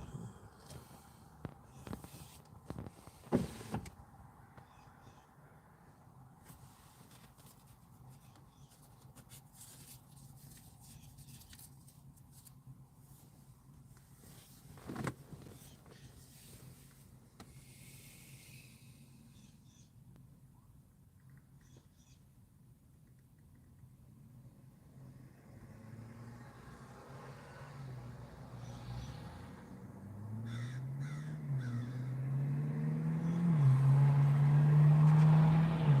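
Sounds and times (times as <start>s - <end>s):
sports car engine accelerating: 24.9s - 36.0s
crow cawing: 30.5s - 32.1s.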